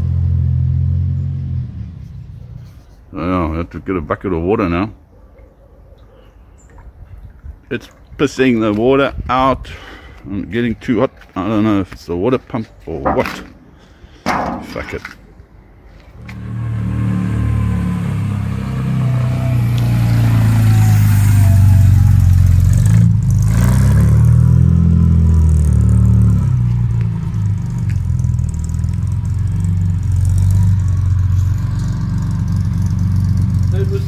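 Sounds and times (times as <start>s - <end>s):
car engine starting and revving: 16.2s - 34.0s.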